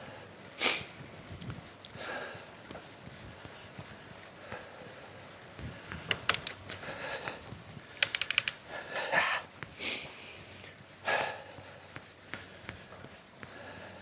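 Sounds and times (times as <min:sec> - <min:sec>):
cyclist breathing hard: 0:00.0 - 0:14.0
bicycle clicking: 0:06.0 - 0:06.9, 0:07.9 - 0:08.7.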